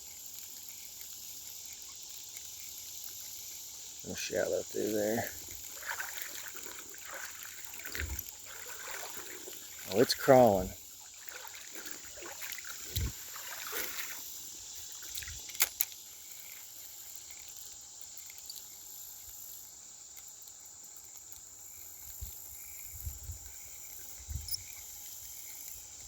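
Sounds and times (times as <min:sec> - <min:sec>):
faint insect chirps: 0:00.0 - 0:26.0
insects buzzing: 0:00.0 - 0:26.0.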